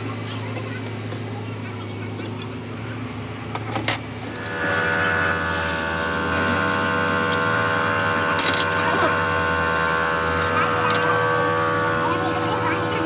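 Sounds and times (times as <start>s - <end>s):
low background hum: 0.0s - 13.0s
small electric motor whining: 4.2s - 13.0s.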